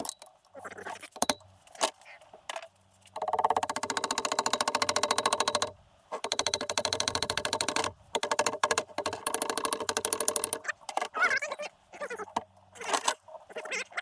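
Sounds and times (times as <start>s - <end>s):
rapid mechanical clicking: 3.1s - 11.2s.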